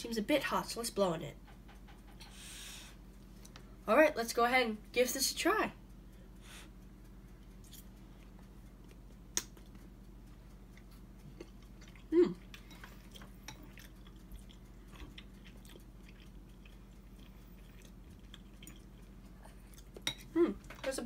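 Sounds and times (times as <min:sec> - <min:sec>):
low electrical hum: 0:00.0 - 0:21.0
person chewing noodles: 0:07.4 - 0:20.7
person humming: 0:12.1 - 0:12.4.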